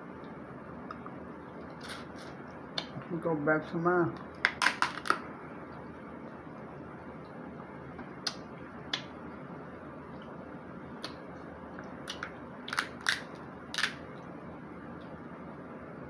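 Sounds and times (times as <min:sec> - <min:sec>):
crab shell cracking and crunching: 0:04.3 - 0:05.2, 0:12.0 - 0:14.2.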